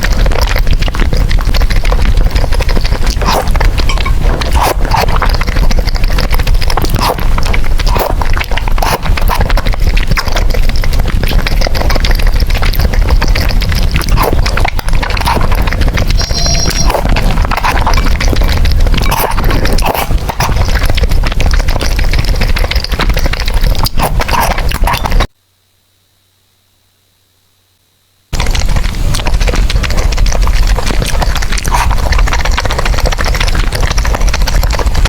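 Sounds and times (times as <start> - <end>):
small mouth clicks: 0.0 - 25.3
wet chewing and slurping: 0.0 - 25.3, 28.3 - 35.0.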